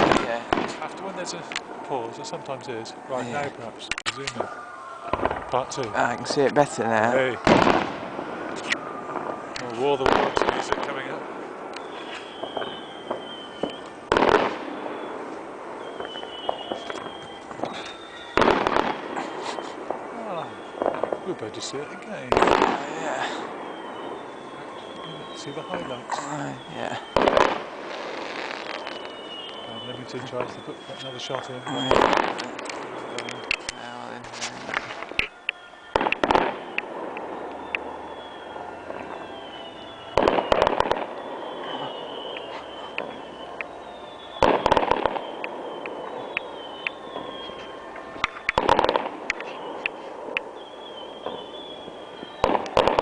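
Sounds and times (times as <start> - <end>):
firework pops and crackles: 0.0 - 1.8, 3.8 - 53.0
firework bang: 0.0 - 1.9, 3.9 - 26.1, 26.8 - 53.0
high wavering whistle: 11.8 - 14.0, 14.7 - 21.4, 28.1 - 34.0, 34.7 - 52.8.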